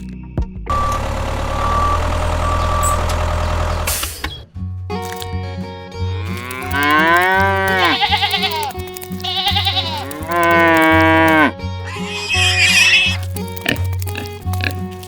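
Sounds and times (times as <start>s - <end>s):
background music with low beat: 0.0s - 0.7s
long rising animal calls: 6.2s - 14.7s.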